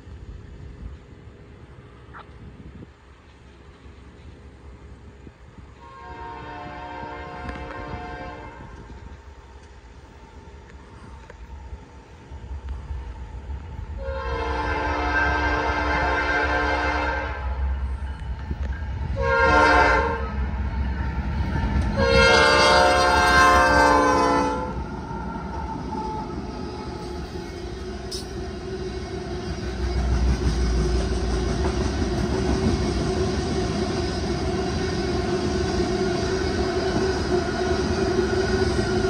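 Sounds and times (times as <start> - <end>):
wheels on rail: 0.0 - 39.0
locomotive air horn: 5.8 - 8.8, 14.0 - 17.6, 19.2 - 20.3, 21.9 - 24.8.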